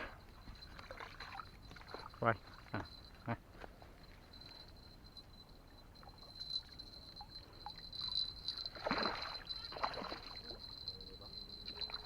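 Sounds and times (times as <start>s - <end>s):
water sloshing and splashing: 0.0s - 3.0s, 7.6s - 10.8s
faint high-pitched whine: 0.0s - 12.0s.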